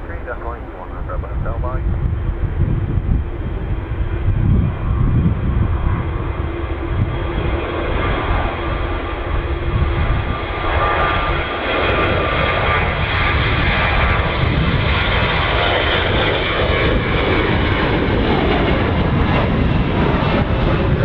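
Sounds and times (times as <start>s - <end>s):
jet engines passing close: 0.0s - 21.0s.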